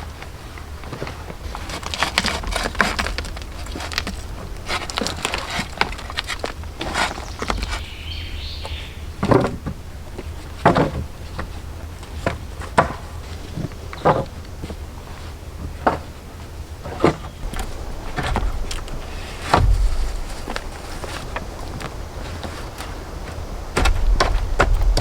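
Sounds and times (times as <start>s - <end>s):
irregular knocks and thuds: 0.9s - 7.9s, 8.6s - 14.8s, 15.6s - 25.0s
steady low rumble: 2.4s - 12.1s, 17.4s - 25.0s.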